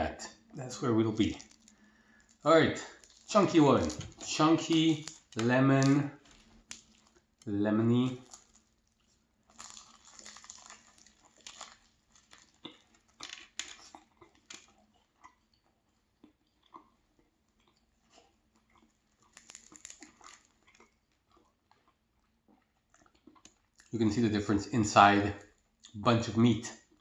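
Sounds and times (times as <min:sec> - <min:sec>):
pastry crunching while eaten: 0:00.3 - 0:24.0.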